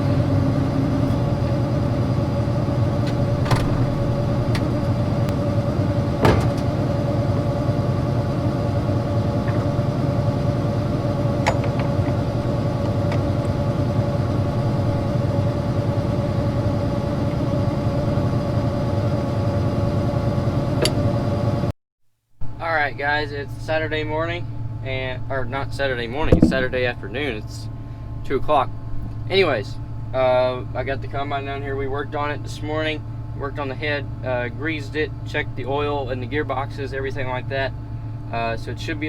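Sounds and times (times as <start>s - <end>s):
diesel engine idling: 0.0s - 21.7s, 22.8s - 39.0s
metallic clicks and knocks: 11.4s - 12.2s, 26.2s - 27.0s.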